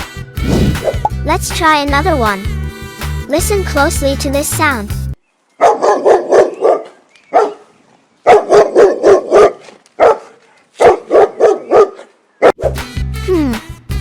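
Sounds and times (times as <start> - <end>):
dog barking: 5.6 - 12.8.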